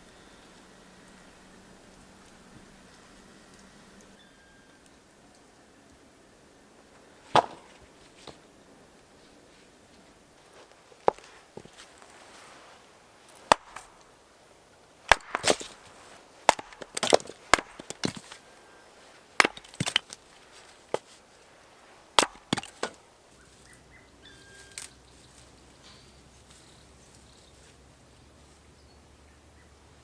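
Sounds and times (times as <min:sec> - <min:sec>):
axe chopping wood: 0:07.3 - 0:07.8, 0:13.4 - 0:13.9, 0:15.1 - 0:15.8, 0:16.4 - 0:18.4, 0:19.4 - 0:20.2, 0:22.2 - 0:23.0.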